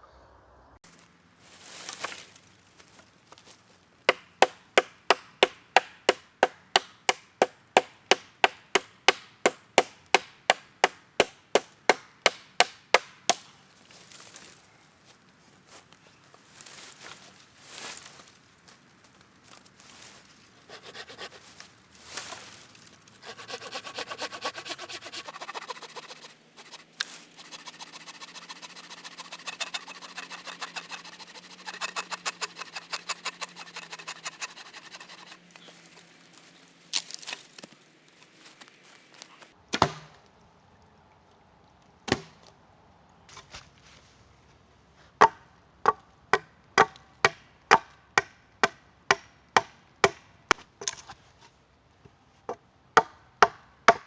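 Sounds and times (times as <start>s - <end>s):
rasping saw strokes on branch: 20.6s - 22.4s, 23.2s - 35.4s.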